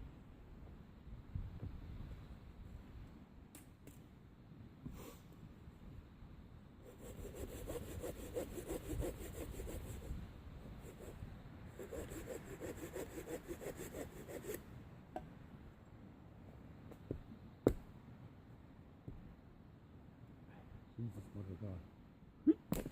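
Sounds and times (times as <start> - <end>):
hand saw cutting wood: 6.9 - 10.0, 11.8 - 14.6.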